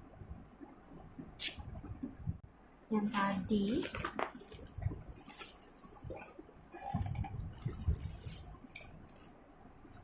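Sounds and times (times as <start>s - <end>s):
paper packaging rustling: 3.0s - 6.3s, 6.9s - 9.3s.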